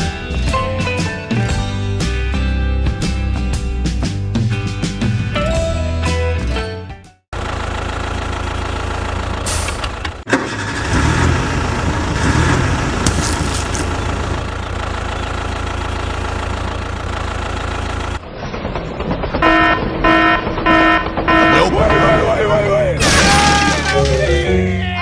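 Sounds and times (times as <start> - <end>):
small engine running: 7.4 - 18.2.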